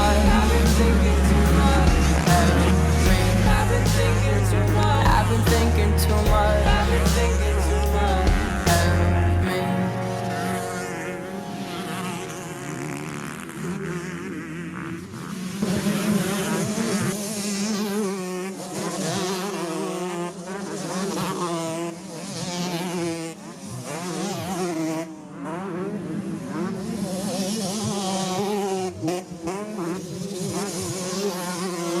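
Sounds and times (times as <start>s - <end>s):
steady low drone: 0.0s - 13.8s
dirt bike engines revving: 0.0s - 32.0s.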